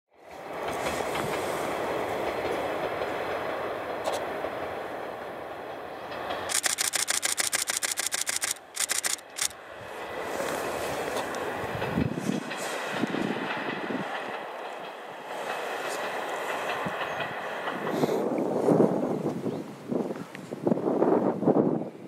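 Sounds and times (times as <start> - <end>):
train rail rumble: 0.2 - 19.4
camera shutter burst: 6.5 - 9.6.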